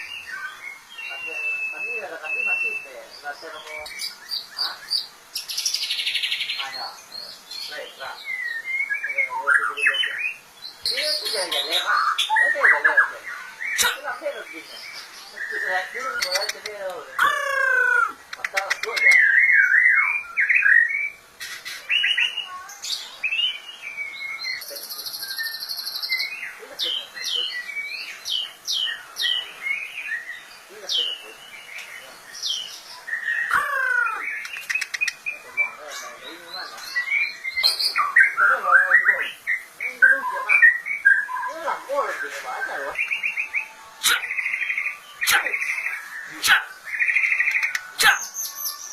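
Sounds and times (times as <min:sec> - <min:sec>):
bird singing whistled notes: 0:00.0 - 0:21.2, 0:21.8 - 0:48.9
rapid buzzy bird trill: 0:42.9 - 0:48.9.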